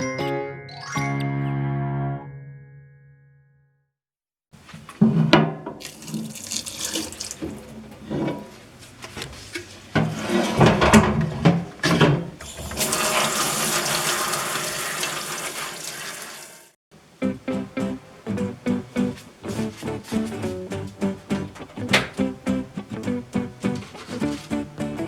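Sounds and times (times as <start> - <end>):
knocks of things being rinsed: 4.8 - 16.0, 20.7 - 25.0
tap water splashing into sink: 5.4 - 8.0.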